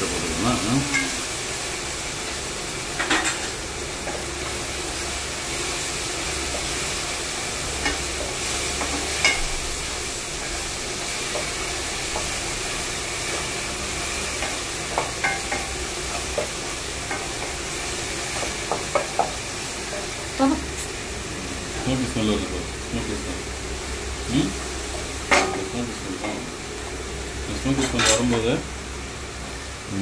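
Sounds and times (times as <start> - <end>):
noodles sizzling in a pot: 0.0 - 30.0
spatula knocking and scraping pan: 18.2 - 20.3.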